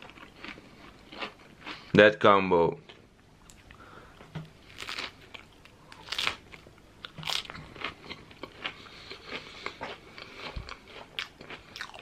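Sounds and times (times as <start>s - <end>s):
person chewing with wet crunches: 0.0s - 1.9s, 4.6s - 12.0s.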